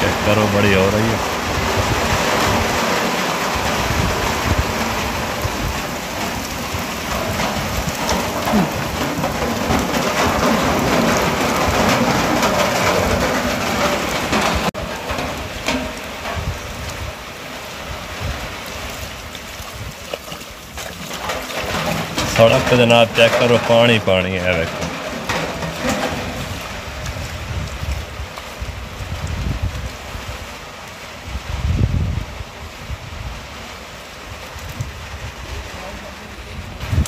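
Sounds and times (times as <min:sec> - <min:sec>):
heavy rain pouring: 0:00.0 - 0:37.0.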